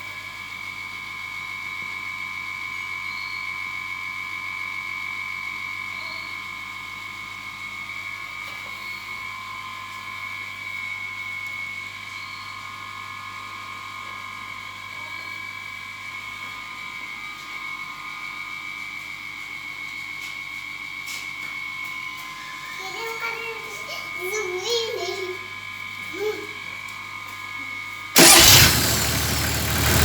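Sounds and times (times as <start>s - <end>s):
diesel engine running: 28.2s - 30.0s.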